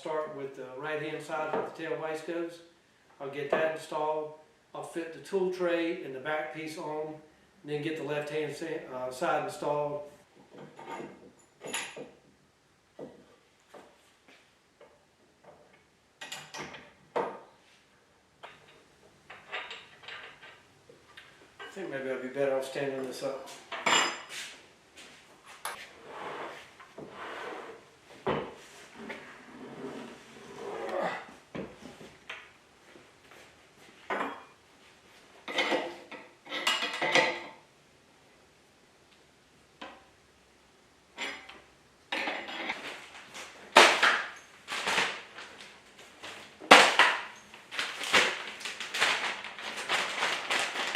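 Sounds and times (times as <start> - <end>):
wooden knocks and clunks: 28.2 - 28.6
wooden parts knocking and clattering: 46.2 - 50.9.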